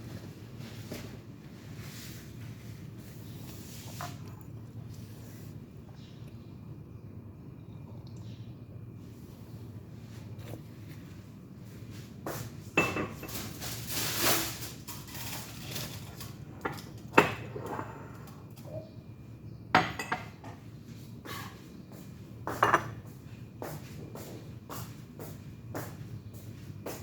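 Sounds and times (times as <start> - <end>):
dishes and cutlery clinking: 12.8 - 13.8, 22.5 - 23.1.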